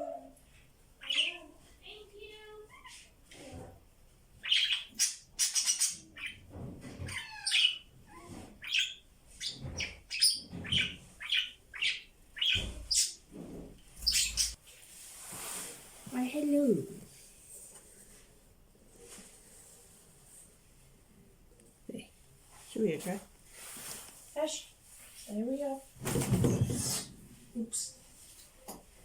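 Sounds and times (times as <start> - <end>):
budgies chattering: 4.4 - 6.4, 8.6 - 13.2, 14.0 - 14.6.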